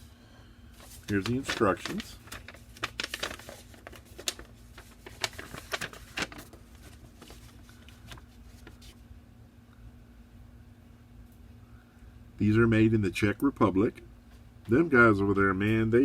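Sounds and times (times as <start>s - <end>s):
paper rustling: 0.8s - 9.0s.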